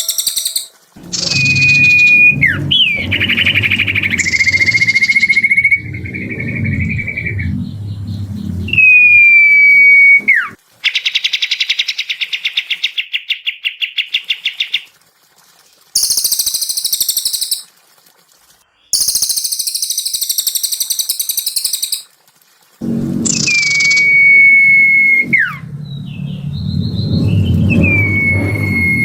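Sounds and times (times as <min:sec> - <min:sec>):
harsh high bird chattering: 0:00.0 - 0:05.4
fast bird trill: 0:00.0 - 0:05.8, 0:16.0 - 0:17.7, 0:19.0 - 0:22.1
high bird whistle: 0:00.0 - 0:10.6, 0:16.0 - 0:17.6, 0:18.9 - 0:22.0, 0:23.2 - 0:29.0
low rumble: 0:01.0 - 0:10.6, 0:22.8 - 0:29.0.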